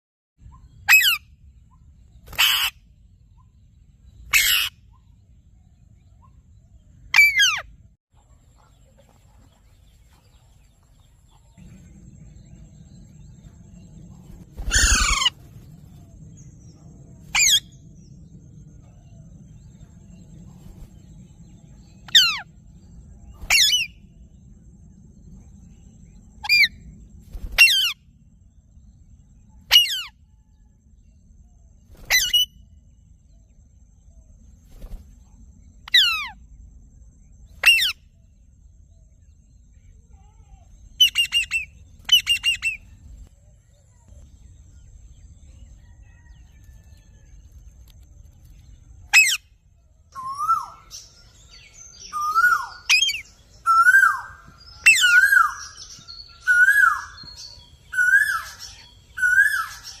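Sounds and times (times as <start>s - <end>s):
parrot squawking: 4.3s - 4.7s, 14.7s - 15.3s
rising and falling bird call: 14.5s - 16.3s, 45.8s - 47.4s, 50.1s - 60.0s.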